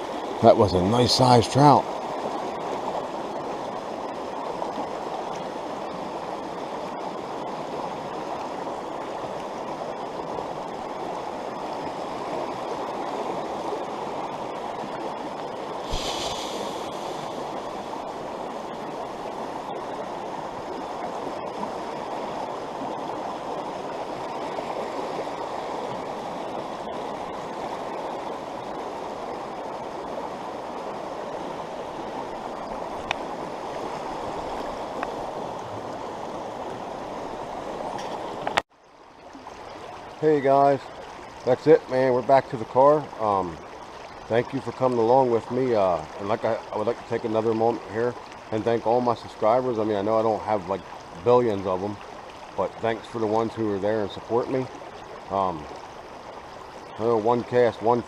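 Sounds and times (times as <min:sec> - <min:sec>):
stream rushing over rocks: 0:00.0 - 0:58.0
brief thump: 0:15.9 - 0:17.0.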